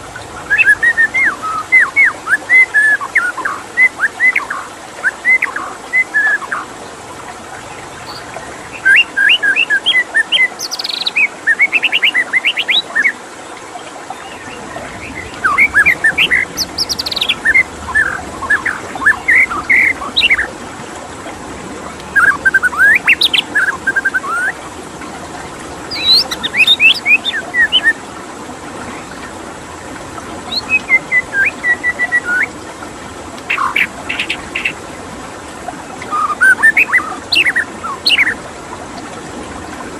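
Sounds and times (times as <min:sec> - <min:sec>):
running water: 0:00.0 - 0:39.9
bird singing whistles and trills: 0:00.1 - 0:06.6, 0:08.0 - 0:13.2, 0:14.4 - 0:20.5, 0:22.0 - 0:24.6, 0:25.9 - 0:28.0, 0:30.5 - 0:32.5, 0:33.4 - 0:34.8, 0:36.1 - 0:38.4.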